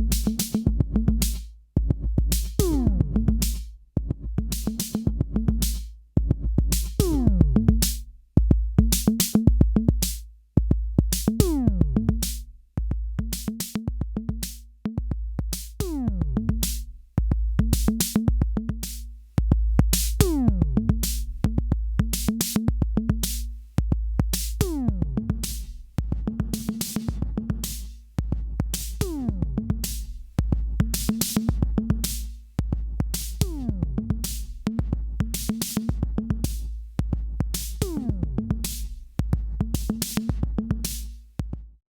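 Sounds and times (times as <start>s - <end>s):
deep bass: 0.0s - 4.5s, 5.1s - 8.9s, 10.8s - 13.3s, 15.8s - 18.8s, 19.4s - 26.6s, 28.3s - 31.0s, 32.7s - 35.4s, 36.0s - 40.8s
hi-hat clicks: 0.0s - 8.1s, 17.6s - 41.4s.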